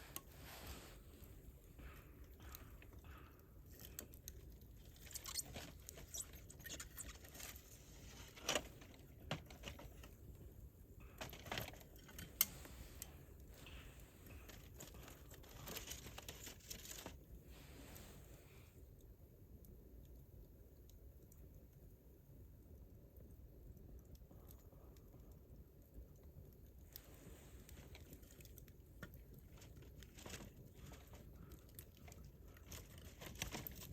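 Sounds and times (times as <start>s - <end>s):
campfire crackling: 0.0s - 33.9s
fire pops and snaps: 19.0s - 33.9s.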